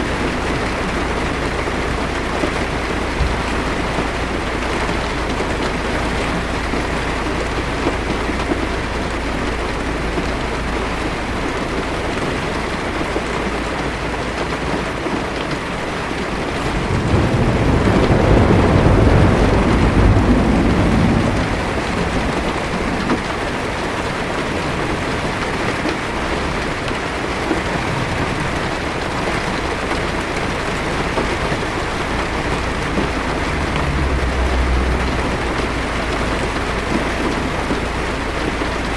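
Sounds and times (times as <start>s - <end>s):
low rumble of thunder: 0.0s - 13.2s, 15.6s - 38.9s
heavy rain on a car roof: 0.0s - 38.9s.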